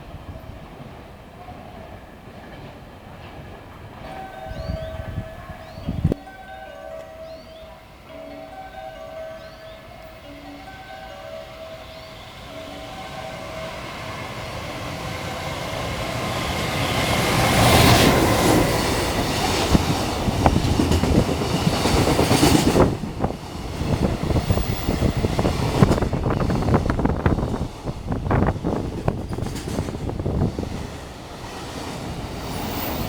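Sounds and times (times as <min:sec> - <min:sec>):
freight train passing: 0:00.0 - 0:33.0
wheels clacking over rail joints: 0:11.9 - 0:33.0.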